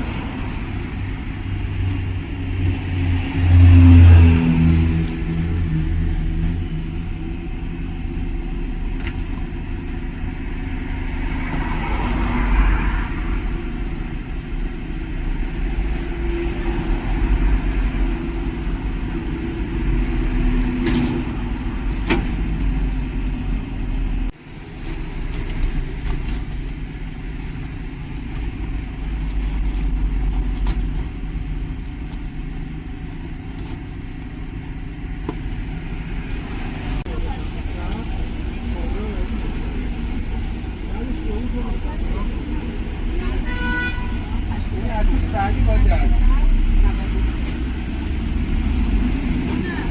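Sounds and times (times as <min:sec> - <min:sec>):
low motor rumble: 0:00.0 - 0:43.5.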